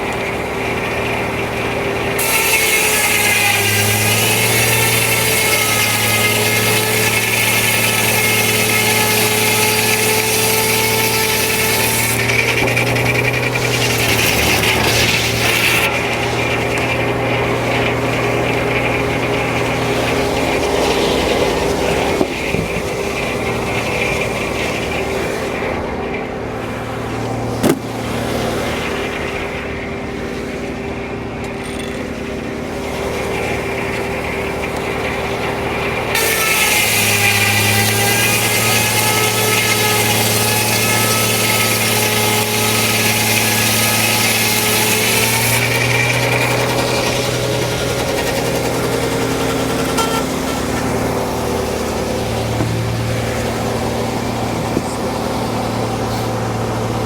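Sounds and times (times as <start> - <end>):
saw blade cutting log: 0.0 - 29.8, 31.4 - 57.0
sawmill engine running: 0.0 - 57.0.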